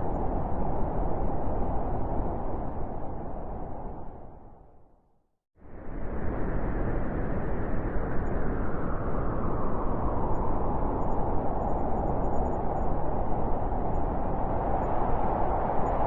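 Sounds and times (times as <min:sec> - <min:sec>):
howling wind: 0:00.0 - 0:05.0, 0:05.6 - 0:16.0.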